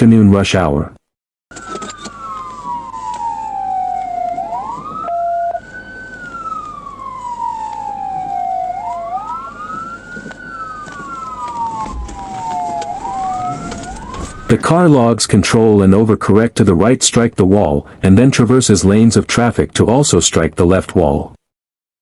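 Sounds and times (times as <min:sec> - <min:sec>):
sirens wailing: 0:01.5 - 0:16.6.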